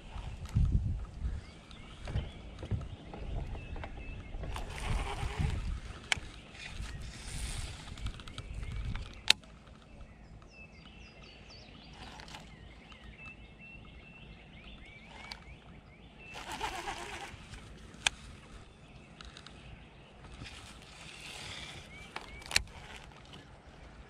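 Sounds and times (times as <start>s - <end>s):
songbirds chirping: 0.0s - 24.0s
sharp clicks: 7.8s - 11.0s, 14.6s - 18.2s, 20.2s - 23.5s.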